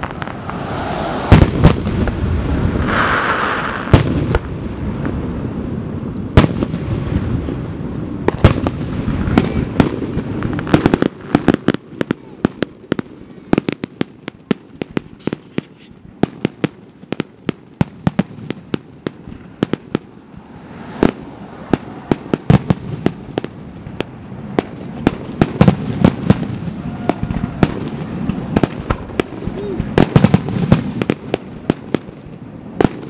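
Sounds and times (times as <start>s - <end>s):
low rumble: 0.0s - 5.1s, 19.4s - 23.9s
fireworks bangs and cracks: 0.0s - 33.0s.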